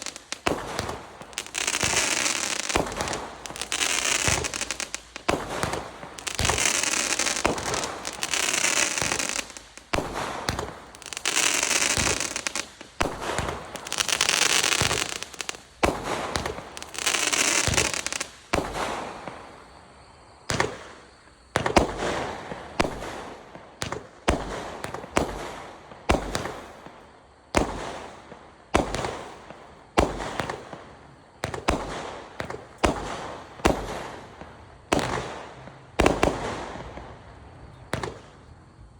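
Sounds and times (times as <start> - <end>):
fireworks cake firing: 0.0 - 19.8, 20.4 - 38.9.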